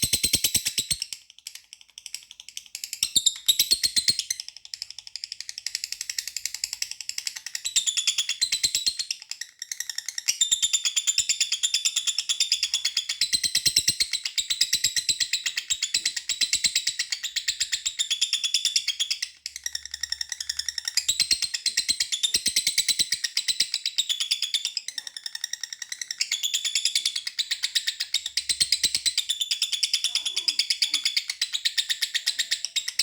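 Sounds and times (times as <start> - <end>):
lovebird chattering trill: 29.5 - 33.0.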